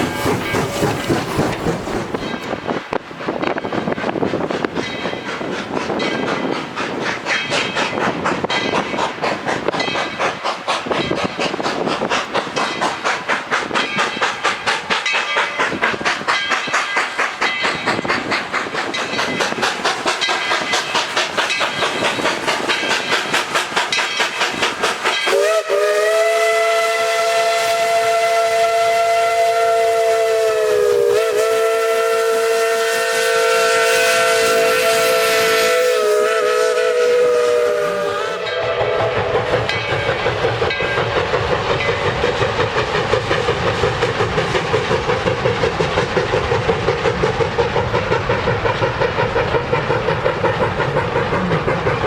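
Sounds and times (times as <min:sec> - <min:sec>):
steam locomotive exhaust chuffs: 0:00.0 - 0:52.0
steam whistle blast: 0:25.3 - 0:39.6.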